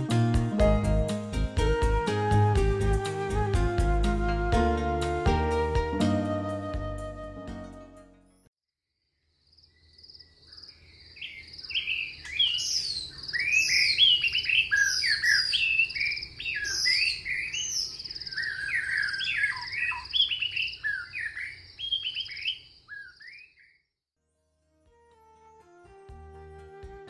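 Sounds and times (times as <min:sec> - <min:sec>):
birds chirping and calling: 0:10.2 - 0:23.7.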